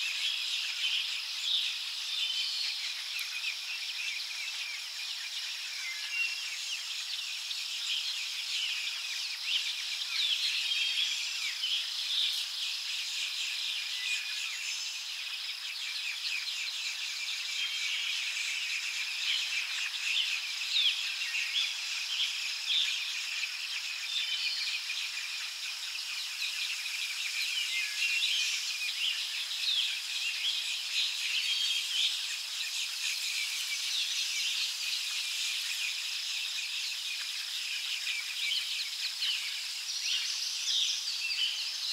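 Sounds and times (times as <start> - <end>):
high-pitched insect drone: 0.0 - 41.9
small birds chirping: 0.0 - 41.9.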